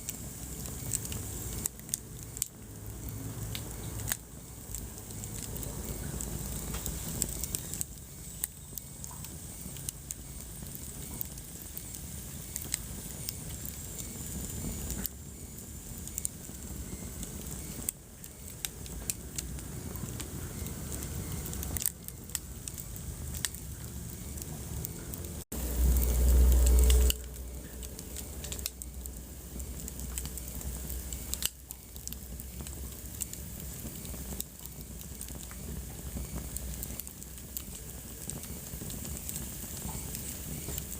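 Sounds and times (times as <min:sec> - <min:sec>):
wood fire crackling: 0:00.0 - 0:40.9
loud low rumble: 0:23.0 - 0:29.9.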